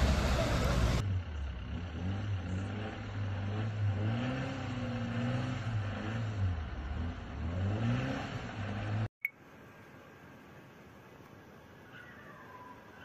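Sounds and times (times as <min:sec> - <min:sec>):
car engine revving: 0:00.0 - 0:09.1.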